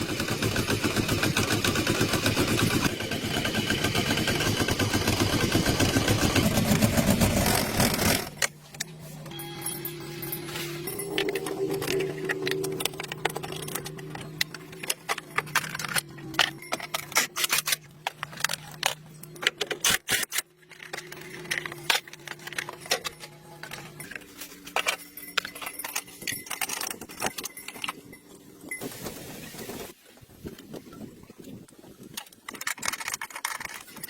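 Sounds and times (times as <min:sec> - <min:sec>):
metallic clinking and rattling: 0:07.4 - 0:19.9, 0:20.6 - 0:28.8.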